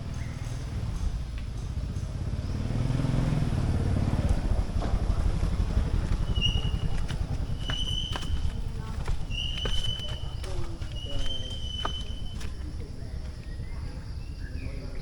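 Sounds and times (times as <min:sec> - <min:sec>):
passing vehicle engine rumble: 0:00.0 - 0:15.0.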